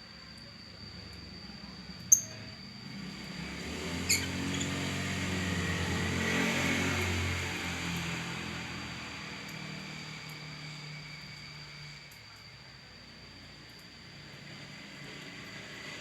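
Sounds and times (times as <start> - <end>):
vehicle engine drone passing: 2.8 - 11.3.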